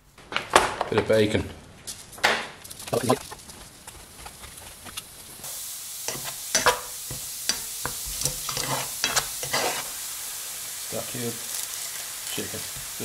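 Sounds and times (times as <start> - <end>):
vegetables sizzling in a pan: 4.7 - 13.0.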